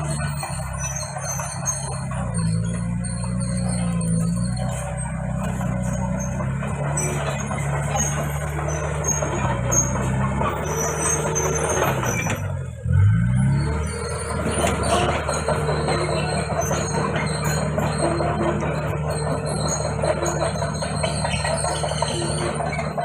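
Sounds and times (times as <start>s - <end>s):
bulldozer diesel engine: 0.0s - 23.0s
steel tracks squealing and clattering: 0.0s - 23.0s.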